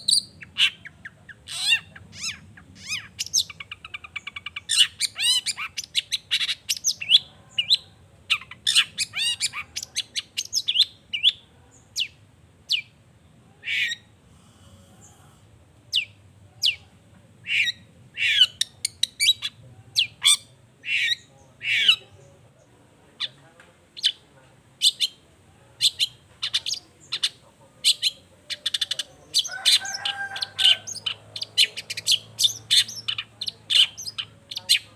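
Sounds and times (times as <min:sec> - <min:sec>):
bird harsh squawks: 0:00.0 - 0:11.3, 0:13.6 - 0:14.1, 0:17.4 - 0:22.0, 0:25.8 - 0:34.9.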